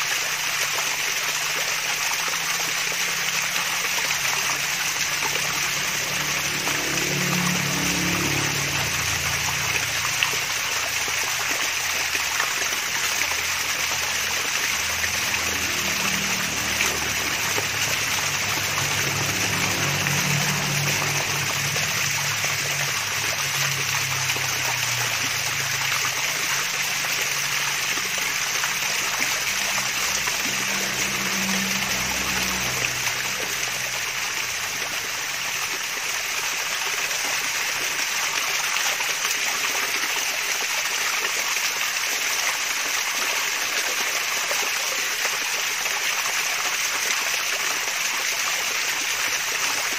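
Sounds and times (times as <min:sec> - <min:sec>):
low water burbling: 0:00.0 - 0:49.9
water splashing over waterfall: 0:00.0 - 0:49.9.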